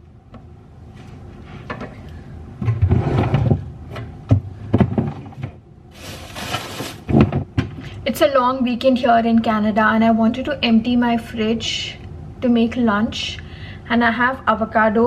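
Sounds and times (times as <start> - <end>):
drawer sliding: 2.7 - 3.7, 5.0 - 7.4
rustling: 5.9 - 7.2
wooden knocks and thuds: 7.1 - 7.7.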